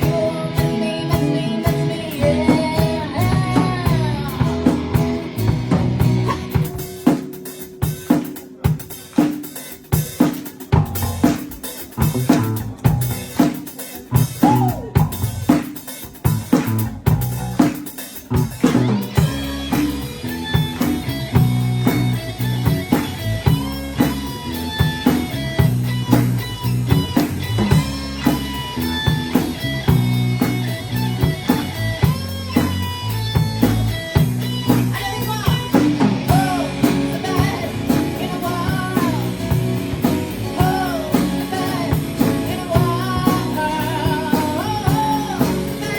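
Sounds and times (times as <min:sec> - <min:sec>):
rock band playing: 0:00.0 - 0:45.9.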